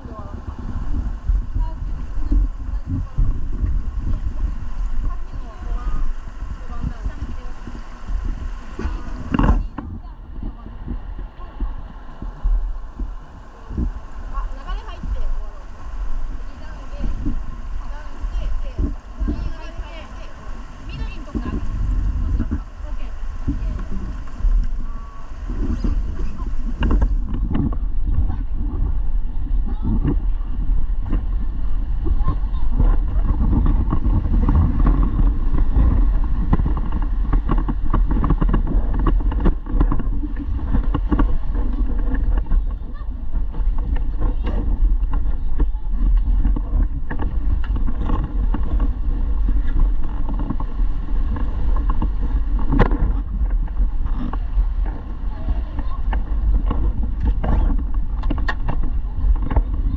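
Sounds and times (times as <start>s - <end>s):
river water rushing: 0.0s - 29.4s
knocks and splashes: 0.0s - 59.9s
river water: 0.0s - 59.9s
wind rumbling on microphone: 0.0s - 59.9s.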